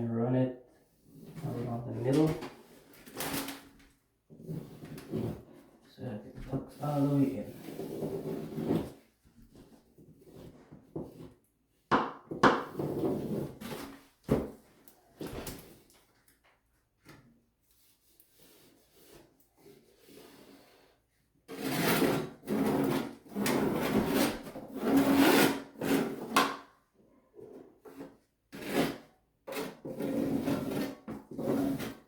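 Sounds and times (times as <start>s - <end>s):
putty knife scraping membrane: 6.8s - 9.0s, 21.5s - 26.7s, 27.8s - 32.0s.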